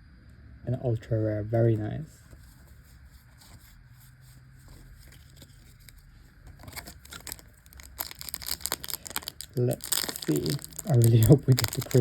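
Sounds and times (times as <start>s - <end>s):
trading cards rustling: 4.6s - 12.0s
foil wrapper crinkling: 4.9s - 12.0s.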